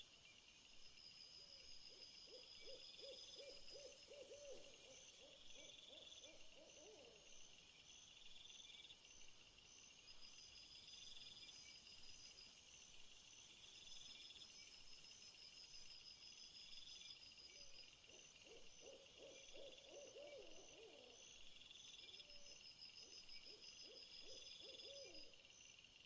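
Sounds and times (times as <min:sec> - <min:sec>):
crickets chirping: 0:00.0 - 0:26.0
low owl-like hoots: 0:01.9 - 0:07.3, 0:18.1 - 0:21.2, 0:23.8 - 0:25.3.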